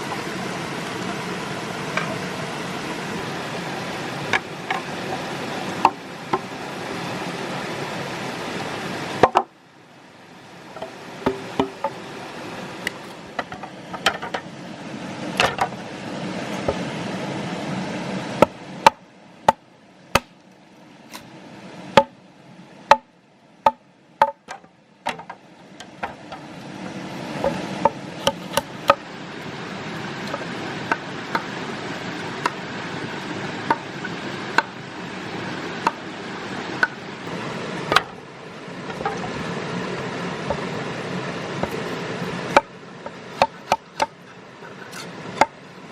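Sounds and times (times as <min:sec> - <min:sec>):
tool chopping wood: 0:20.2 - 0:20.4, 0:23.7 - 0:25.3, 0:43.4 - 0:44.2.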